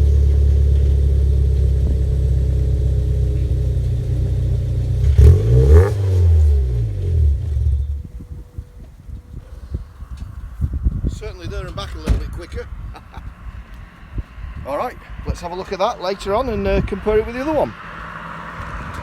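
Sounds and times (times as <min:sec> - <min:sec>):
car driving past: 0:12.2 - 0:19.0.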